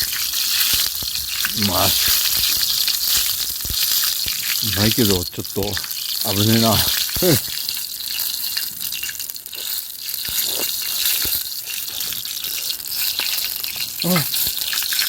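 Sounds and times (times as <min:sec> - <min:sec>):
chicken sizzling on a grill: 0:00.0 - 0:15.0
person grunting: 0:01.5 - 0:02.0, 0:06.6 - 0:07.4, 0:14.0 - 0:14.4.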